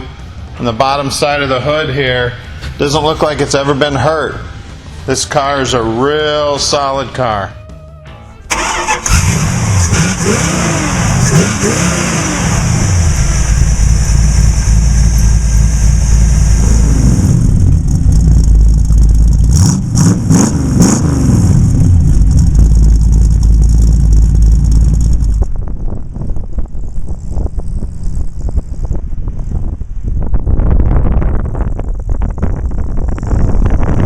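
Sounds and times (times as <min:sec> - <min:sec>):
car engine accelerating: 0:08.5 - 0:29.6.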